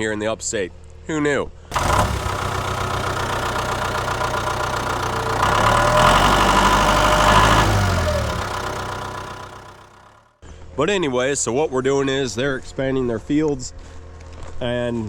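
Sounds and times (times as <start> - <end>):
diesel engine running: 1.7 - 10.3.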